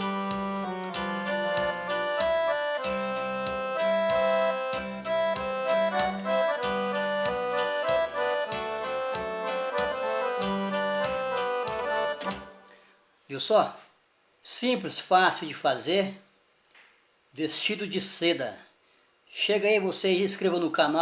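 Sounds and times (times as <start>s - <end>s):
electronic keyboard accordion melody: 0.0s - 12.9s.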